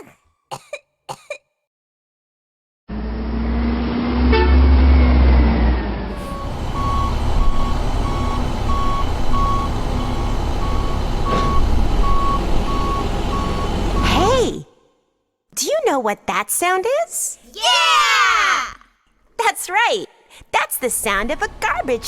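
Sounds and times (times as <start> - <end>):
garbage truck diesel engine rumbling: 2.9 - 14.6, 20.8 - 22.0
reversing alarm beeping: 6.1 - 14.3.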